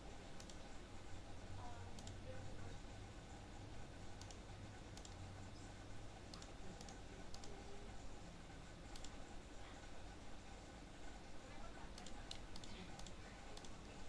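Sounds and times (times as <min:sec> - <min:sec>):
faint low hum: 0:00.0 - 0:14.0
computer mouse clicking: 0:00.4 - 0:00.7, 0:01.9 - 0:02.3, 0:04.1 - 0:07.8, 0:08.8 - 0:09.4, 0:11.8 - 0:14.0.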